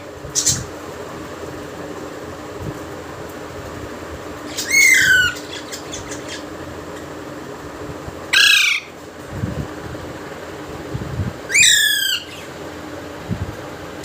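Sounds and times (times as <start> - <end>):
steady low hum: 0.0 - 14.0
parrot squawking: 4.5 - 7.1, 8.3 - 9.0, 11.5 - 12.5.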